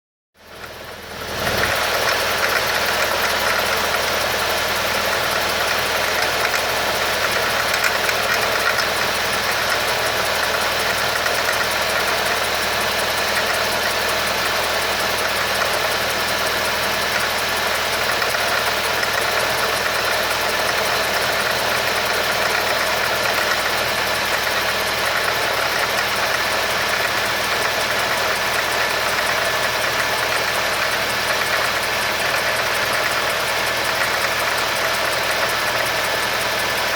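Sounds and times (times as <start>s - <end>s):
car engine idling: 0.4s - 36.9s.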